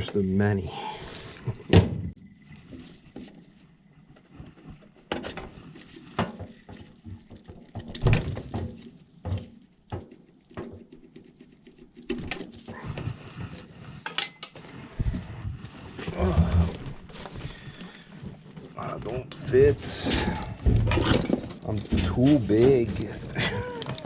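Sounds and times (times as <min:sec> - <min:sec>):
hands handling tools and parts: 0:04.2 - 0:15.2, 0:16.8 - 0:24.0.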